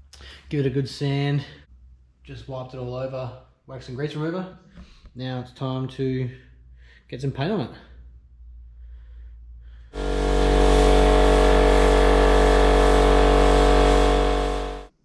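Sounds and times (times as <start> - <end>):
hissing air: 9.9 - 14.9
spray-painting machine humming: 10.0 - 15.0.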